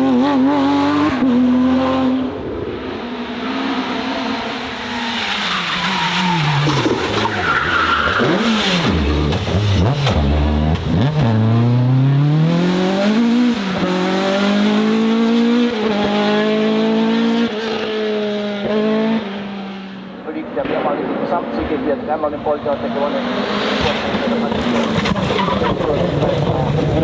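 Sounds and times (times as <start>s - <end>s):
race car engine revving: 0.0s - 27.0s
tyres squealing: 5.0s - 9.9s.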